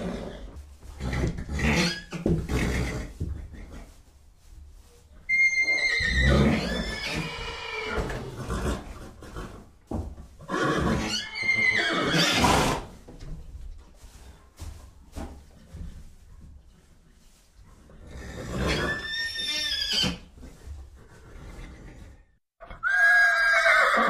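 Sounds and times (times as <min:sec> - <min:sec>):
horse whinnying: 0:00.0 - 0:03.1, 0:05.3 - 0:09.5, 0:10.4 - 0:12.9, 0:18.2 - 0:20.3, 0:22.6 - 0:24.0.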